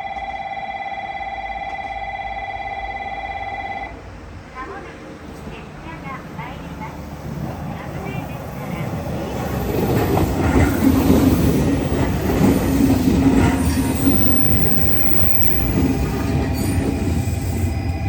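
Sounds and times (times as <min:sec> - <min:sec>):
train wheels rumbling on track: 0:03.9 - 0:18.0.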